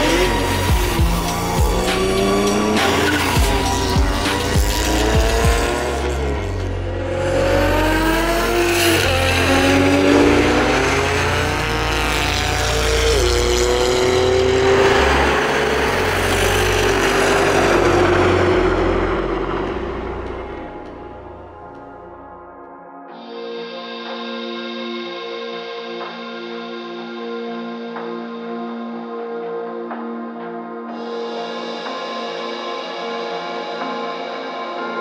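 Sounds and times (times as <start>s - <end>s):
car engine accelerating hard: 0.0s - 22.1s
background music: 0.0s - 35.0s.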